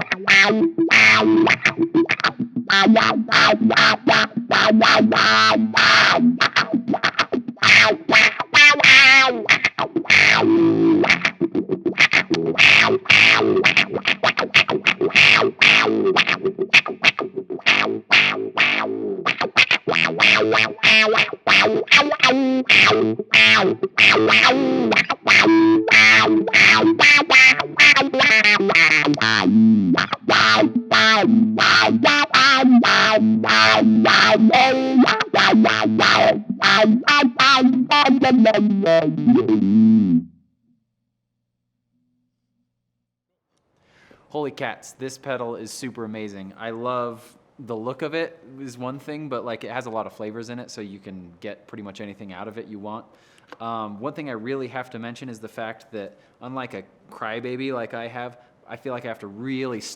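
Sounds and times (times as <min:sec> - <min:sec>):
distorted electric guitar riffs: 0:00.0 - 0:40.3.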